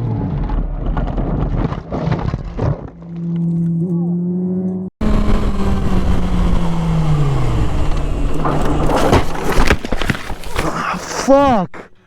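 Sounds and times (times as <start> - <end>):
motorcycle engine running: 3.2 - 10.0.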